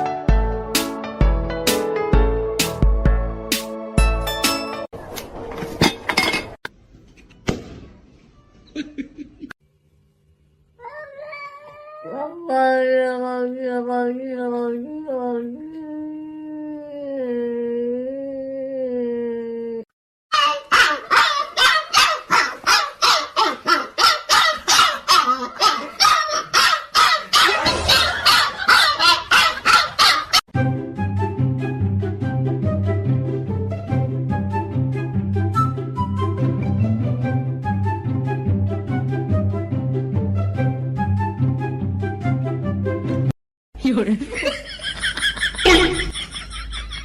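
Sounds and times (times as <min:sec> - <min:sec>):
cat yowling: 0:10.8 - 0:12.4
dog barking rapidly: 0:20.3 - 0:30.4.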